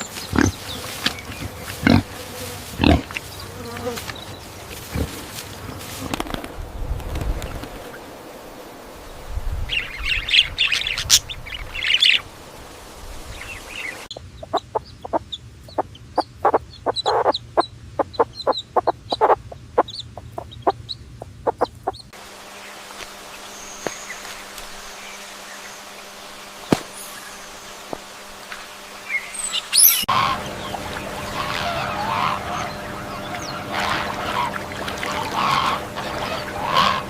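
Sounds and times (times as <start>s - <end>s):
high chirping bird calls: 13.4s - 22.1s, 29.1s - 37.0s
hen clucking: 14.1s - 22.2s, 30.0s - 37.0s.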